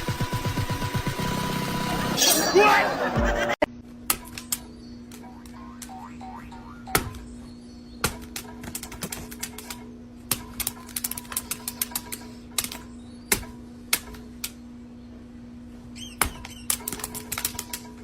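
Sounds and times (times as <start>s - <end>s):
steady low hum: 0.0s - 18.0s
sharp clicks and knocks: 8.0s - 14.6s.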